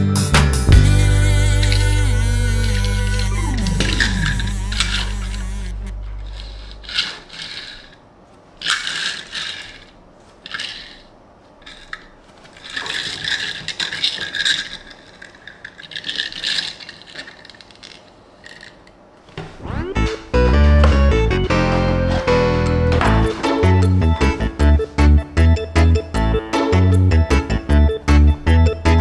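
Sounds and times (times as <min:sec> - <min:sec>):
toy car rattling: 0:01.1 - 0:19.0.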